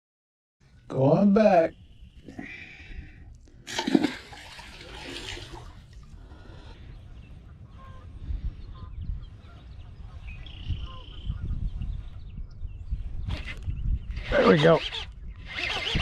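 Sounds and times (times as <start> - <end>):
bird calls: 6.4 - 16.0.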